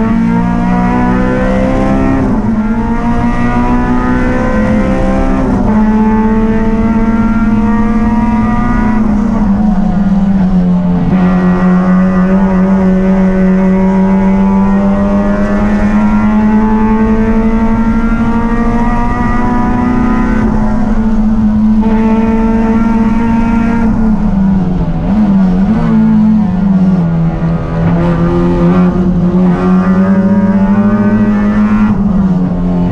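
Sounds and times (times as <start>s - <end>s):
race car engine at high revs: 0.0s - 32.9s.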